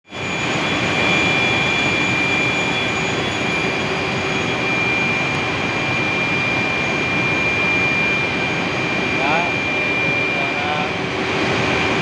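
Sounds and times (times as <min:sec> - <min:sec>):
high-pitched turbine whine: 0:00.0 - 0:12.0
steam turbine rushing: 0:00.1 - 0:12.0.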